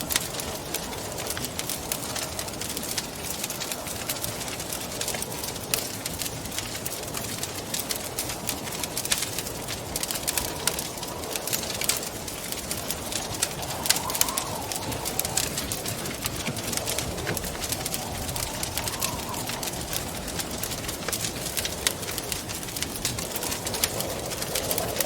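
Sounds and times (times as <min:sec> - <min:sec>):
wind howling: 0:00.0 - 0:25.0
wood fire crackling and popping: 0:00.0 - 0:25.0
wind rushing: 0:09.6 - 0:25.0.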